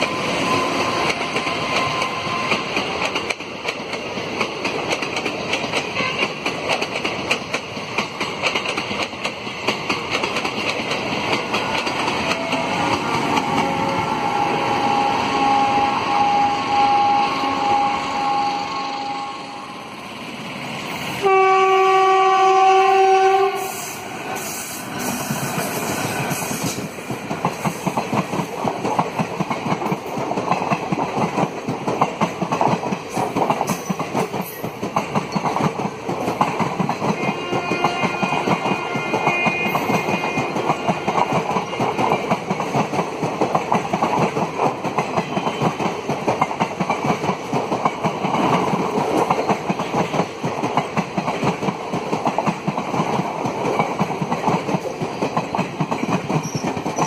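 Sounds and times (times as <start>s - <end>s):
train engine whine: 0.0s - 57.0s
loud train horn: 5.9s - 6.4s, 12.3s - 19.9s, 21.2s - 24.6s, 37.1s - 41.8s.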